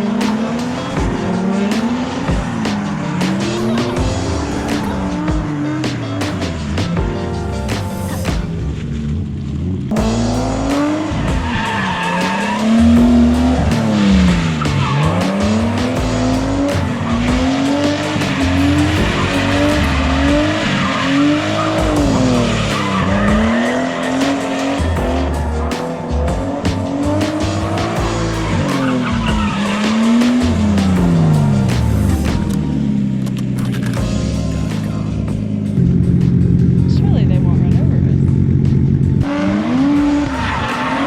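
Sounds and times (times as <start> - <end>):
tires squealing: 0.0 - 37.1, 38.1 - 41.0
car engine revving hard: 8.2 - 33.6, 38.0 - 41.0.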